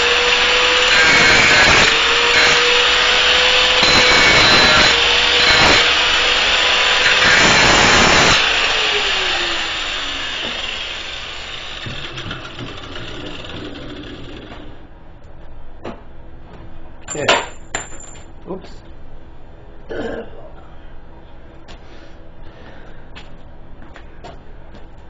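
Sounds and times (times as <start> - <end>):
angle grinder grinding bolt: 0.2 - 8.5.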